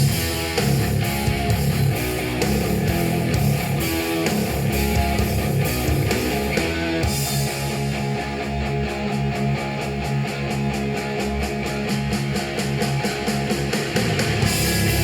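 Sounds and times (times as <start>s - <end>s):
rock music through small speaker: 0.0s - 15.0s.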